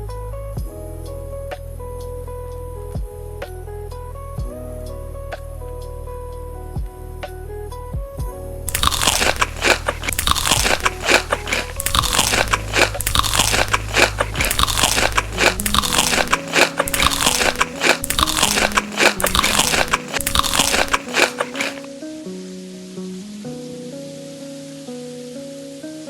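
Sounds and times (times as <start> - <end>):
soft background music: 8.4 - 26.0
crunchy food being chewed: 8.7 - 21.9.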